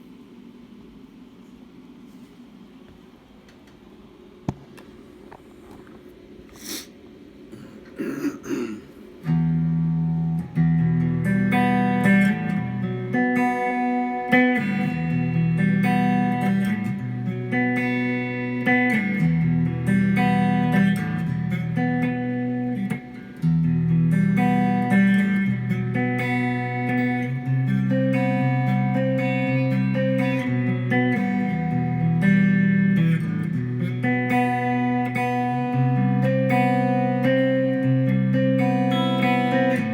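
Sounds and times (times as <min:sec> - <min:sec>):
guitar chords ringing: 0:09.2 - 0:39.9.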